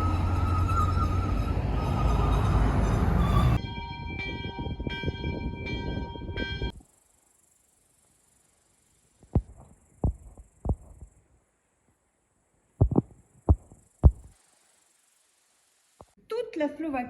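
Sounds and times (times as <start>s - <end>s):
faint high hiss: 6.8s - 16.2s
short low thumps: 9.4s - 11.0s, 12.8s - 14.3s.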